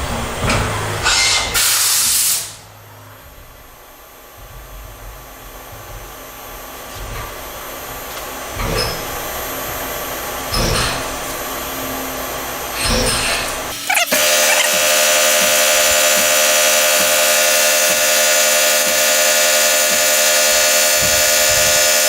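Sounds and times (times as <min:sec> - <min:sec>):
milling machine hissing: 0:13.2 - 0:22.0.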